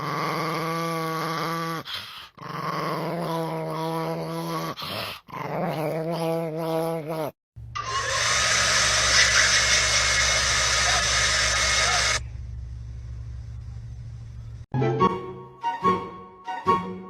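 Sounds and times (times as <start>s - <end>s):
low hum: 7.6s - 14.7s.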